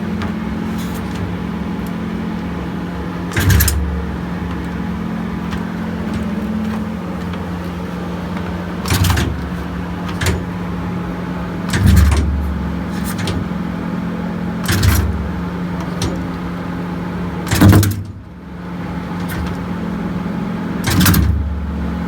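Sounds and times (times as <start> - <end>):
motorcycle throttle blips: 0.0 - 16.6.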